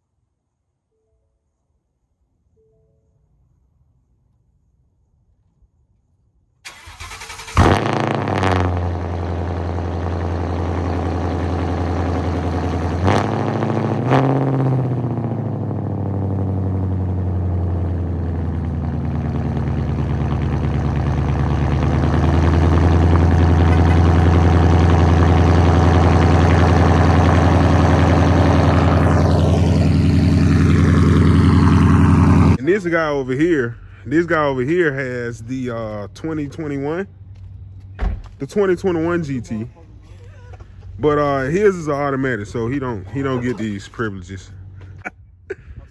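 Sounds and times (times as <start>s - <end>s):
car engine idling loudly: 7.6s - 32.6s.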